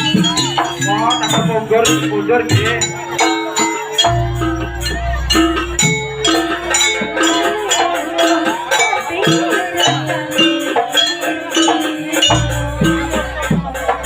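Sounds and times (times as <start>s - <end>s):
drum strokes: 0.0s - 14.0s
wavering melody line: 0.0s - 14.0s.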